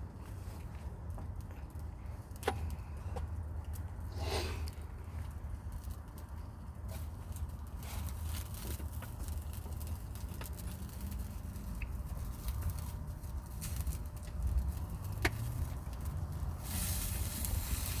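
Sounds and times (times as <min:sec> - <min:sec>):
campfire crackling and popping: 0:01.0 - 0:18.0
sausages sizzling: 0:09.2 - 0:18.0.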